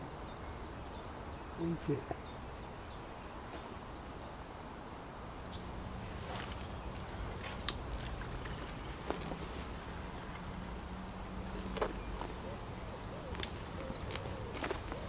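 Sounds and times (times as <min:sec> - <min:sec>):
bird chirp: 0:00.0 - 0:04.8, 0:05.4 - 0:15.0
faint steady hum: 0:00.0 - 0:15.0.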